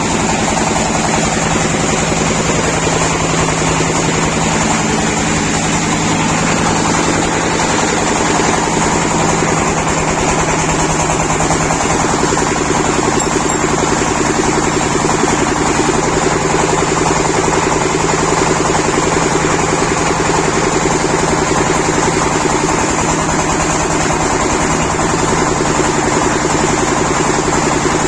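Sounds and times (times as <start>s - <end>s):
machine motor pulsing: 2.3s - 16.9s.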